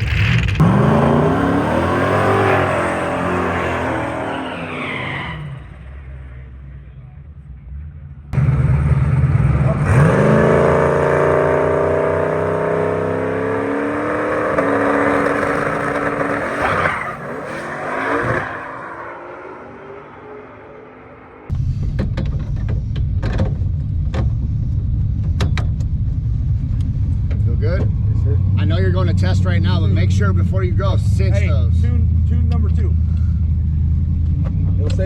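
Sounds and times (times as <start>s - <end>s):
drag race cars accelerating: 0.0s - 21.5s.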